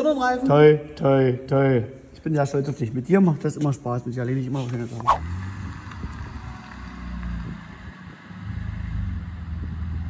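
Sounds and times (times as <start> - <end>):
vehicle engine idling: 5.2 - 10.0.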